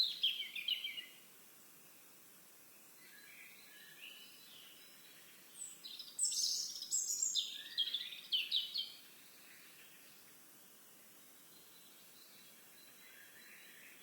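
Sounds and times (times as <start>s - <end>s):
songbird singing trills: 0.0s - 1.2s, 3.0s - 10.2s.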